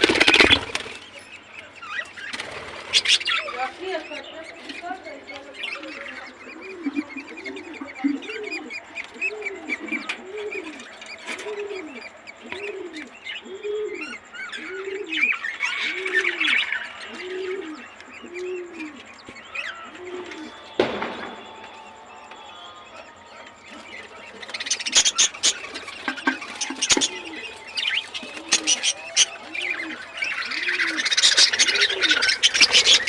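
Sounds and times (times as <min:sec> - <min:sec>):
budgerigars chirping and chattering: 0:00.0 - 0:33.0
low coo calls: 0:05.6 - 0:33.0.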